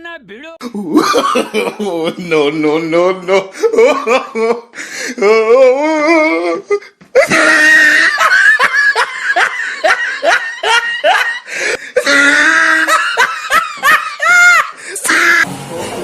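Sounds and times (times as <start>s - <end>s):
loud laughter: 0.8s - 2.4s, 7.2s - 15.5s.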